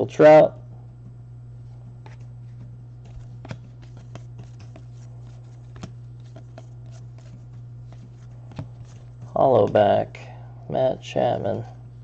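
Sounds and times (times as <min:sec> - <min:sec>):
steady low hum: 0:00.0 - 0:12.0
trading cards clicking and rustling: 0:02.0 - 0:09.8.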